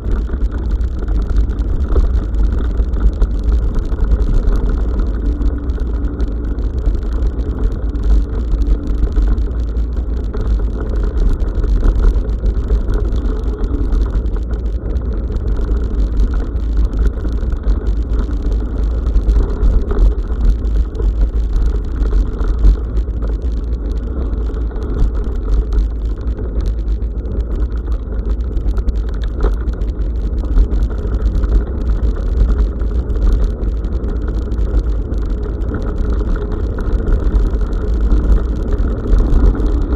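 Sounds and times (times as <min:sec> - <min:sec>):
bicycle rattling on rough track: 0:00.0 - 0:39.9
wind rumble on microphone: 0:00.0 - 0:39.9.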